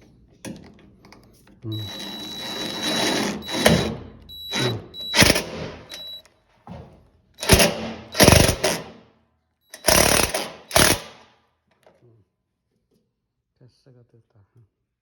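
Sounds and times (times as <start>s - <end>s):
power driver driving fasteners: 1.7s - 6.2s, 7.4s - 9.0s, 9.7s - 11.3s.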